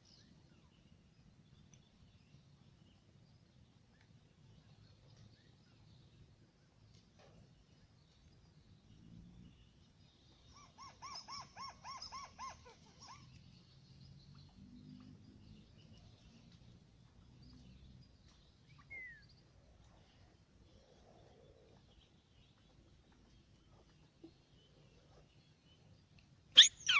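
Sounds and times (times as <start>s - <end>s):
crake calling: 26.6s - 26.9s.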